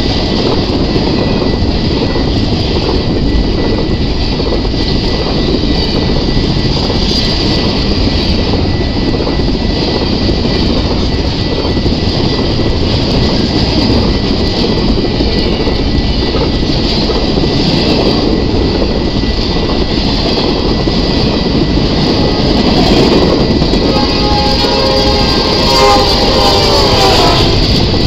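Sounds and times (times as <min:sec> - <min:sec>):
freight train wheels rumbling: 0:00.0 - 0:28.0.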